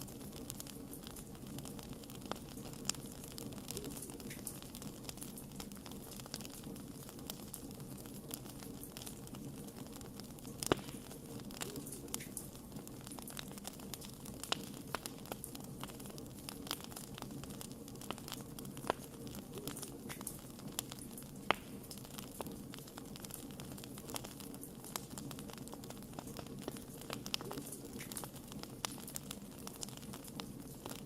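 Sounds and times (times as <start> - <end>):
campfire crackling: 0.0 - 31.0.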